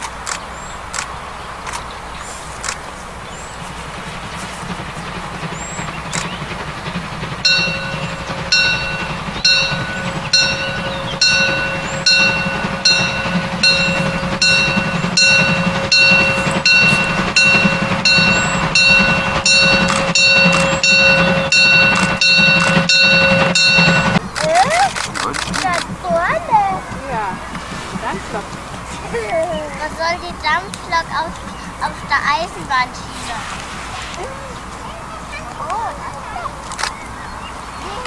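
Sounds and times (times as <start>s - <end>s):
steam locomotive exhaust beats: 0.0s - 38.0s
low rumble: 3.0s - 35.4s
steady ringing tone: 6.1s - 24.4s.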